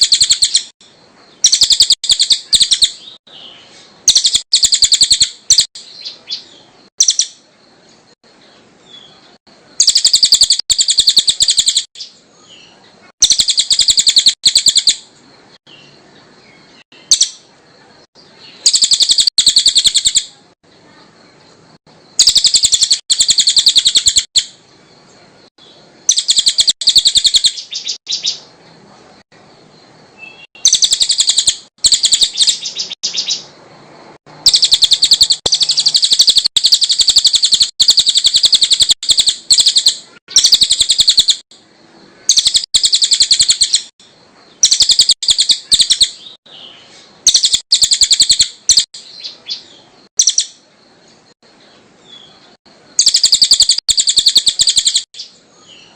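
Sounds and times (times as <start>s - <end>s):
songbird trilling: 0.0s - 0.7s, 1.3s - 7.4s, 8.8s - 15.1s, 16.6s - 17.5s, 18.2s - 20.4s, 22.1s - 24.6s, 26.1s - 28.5s, 30.2s - 33.6s, 34.4s - 41.4s, 42.2s - 43.9s, 44.5s - 50.6s, 52.0s - 55.9s.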